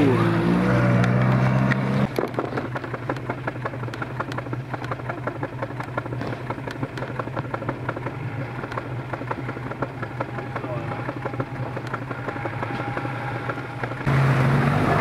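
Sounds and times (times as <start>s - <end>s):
vehicle engine running: 0.0s - 15.0s
irregular clicks and rattles: 1.0s - 14.1s.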